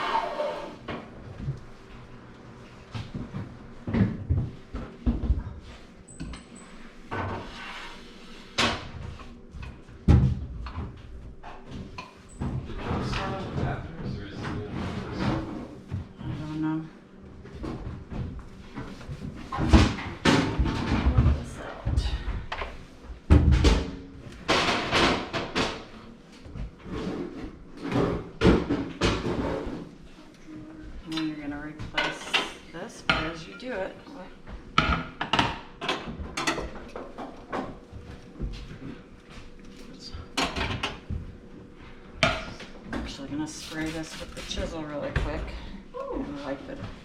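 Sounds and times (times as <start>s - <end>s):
rag rubbing: 0.0s - 0.8s.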